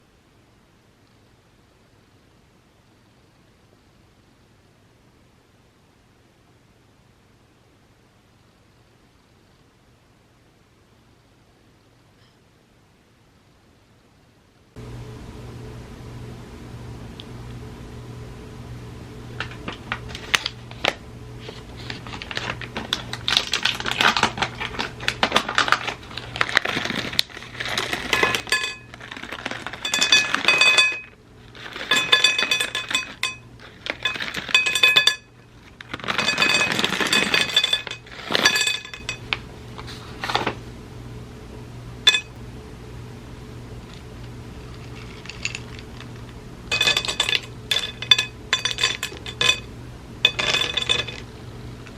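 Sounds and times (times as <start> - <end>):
dishes and cutlery clinking: 27.8 - 29.0, 29.6 - 31.1, 31.7 - 35.3, 36.0 - 39.2, 42.1 - 42.3, 46.7 - 49.7, 50.3 - 51.2.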